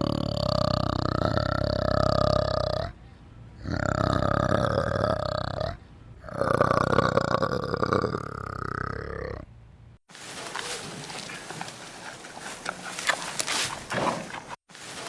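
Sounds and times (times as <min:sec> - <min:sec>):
animal giving low calls: 0:00.0 - 0:09.5.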